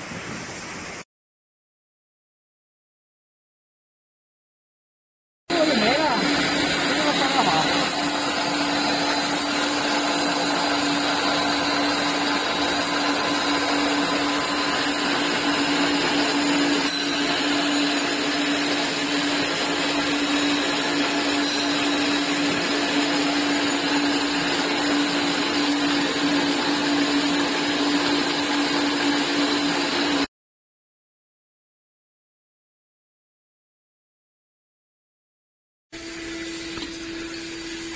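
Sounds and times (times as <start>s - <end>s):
machine motor hum: 5.5s - 30.3s.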